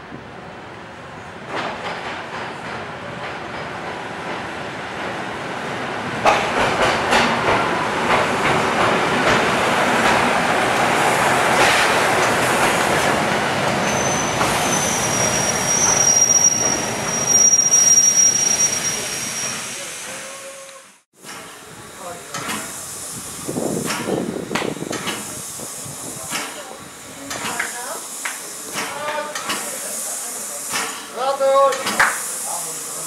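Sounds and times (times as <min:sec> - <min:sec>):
high-pitched wheel squeal: 0:13.8 - 0:20.9.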